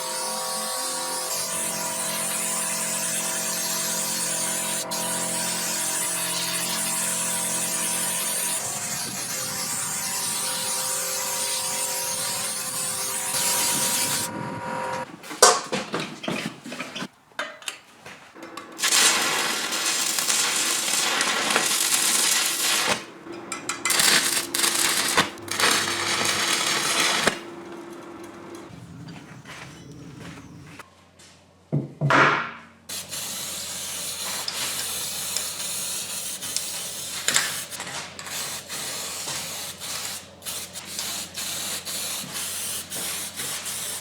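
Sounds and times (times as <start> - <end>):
sandblasting gun hissing: 0.0 - 15.0, 18.8 - 23.2, 23.8 - 27.4, 32.9 - 44.0
low hum: 8.6 - 15.1.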